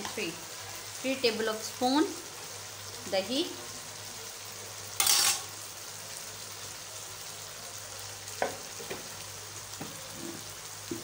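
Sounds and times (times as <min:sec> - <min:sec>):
food sizzling in oil: 0:00.0 - 0:11.0
spoon stirring in wok: 0:09.8 - 0:11.0.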